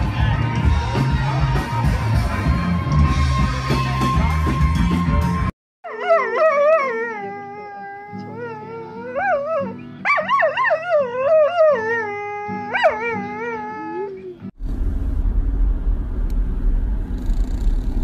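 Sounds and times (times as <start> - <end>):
dog howling: 5.8 - 14.4.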